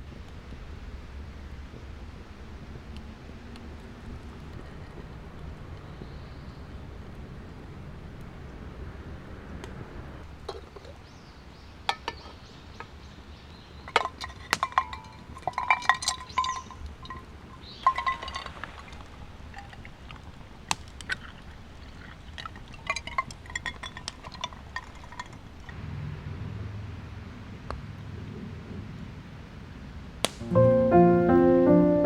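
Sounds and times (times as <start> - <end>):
metal cookware clinking: 13.9 - 18.9, 22.6 - 25.8.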